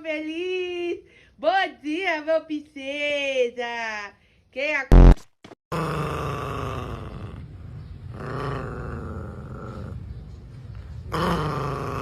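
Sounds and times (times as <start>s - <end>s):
dog growling: 5.7s - 10.2s, 11.1s - 12.0s.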